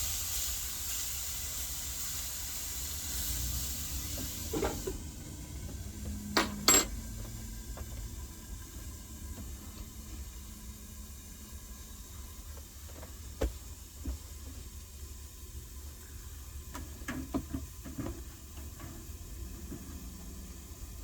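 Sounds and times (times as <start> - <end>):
steaks sizzling in a pan: 0.0 - 5.0.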